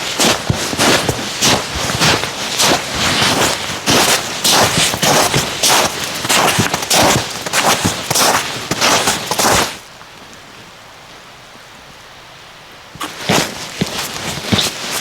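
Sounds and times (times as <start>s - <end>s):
footsteps crunching through snow: 0.0s - 9.8s, 13.0s - 15.0s.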